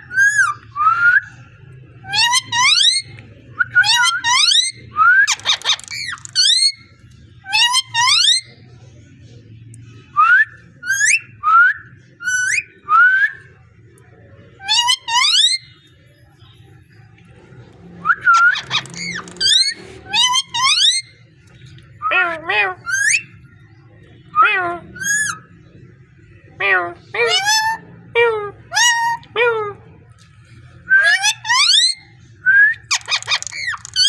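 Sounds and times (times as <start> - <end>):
harsh parrot call: 18.0 - 21.1, 32.8 - 34.0
parrot whistling: 18.0 - 21.1, 32.8 - 34.0.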